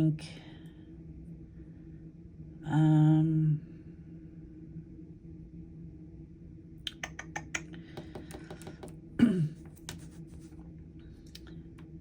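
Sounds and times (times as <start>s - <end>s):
key taps: 8.0s - 8.9s.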